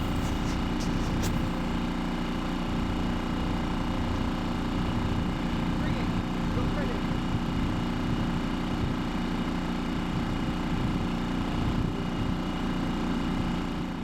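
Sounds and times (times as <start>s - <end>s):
boat motor humming: 0.0s - 2.7s.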